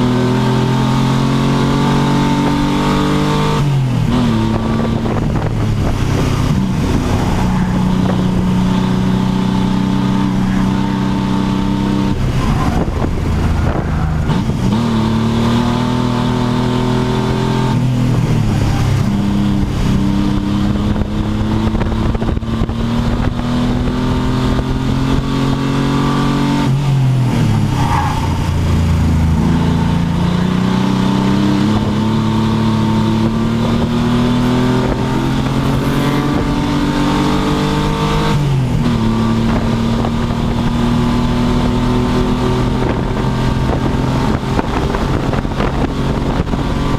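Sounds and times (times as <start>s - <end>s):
race car engine accelerating: 0.0s - 46.9s.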